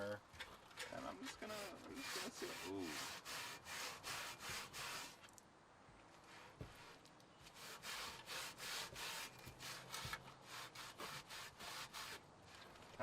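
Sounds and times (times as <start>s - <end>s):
scrubbing rusty metal: 0.7s - 5.2s, 7.5s - 12.2s.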